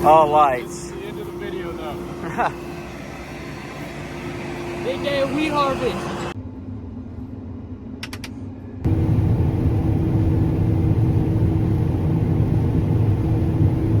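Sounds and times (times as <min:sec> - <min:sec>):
loud low engine rumble: 0:00.0 - 0:06.4, 0:08.8 - 0:14.0
vehicle engine humming: 0:00.0 - 0:14.0.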